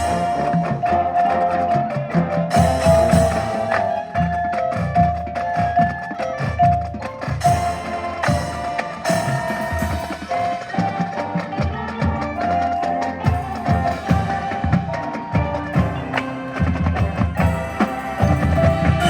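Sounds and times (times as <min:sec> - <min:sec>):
drum and percussion hits: 0:00.0 - 0:19.0
marching band playing: 0:00.0 - 0:19.0.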